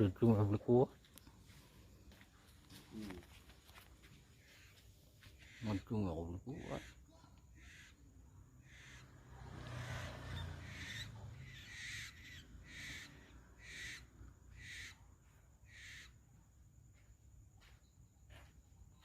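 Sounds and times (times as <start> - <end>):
owls hissing calls: 9.8 - 15.0, 15.7 - 16.1.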